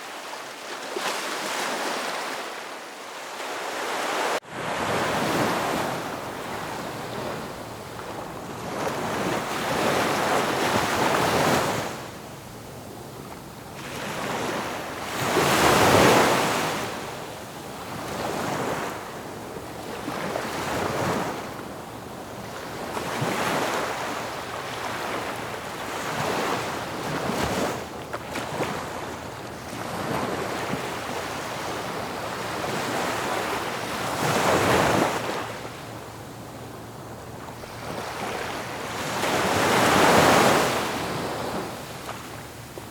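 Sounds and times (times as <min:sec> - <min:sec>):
ocean waves breaking: 0:00.0 - 0:12.1.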